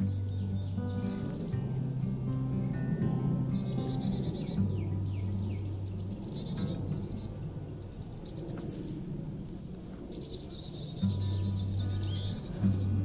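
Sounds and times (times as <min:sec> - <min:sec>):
low steady hum: 0:00.0 - 0:10.0, 0:11.0 - 0:13.0
outdoor background hiss: 0:00.0 - 0:13.0
songbird trilling: 0:00.0 - 0:13.0.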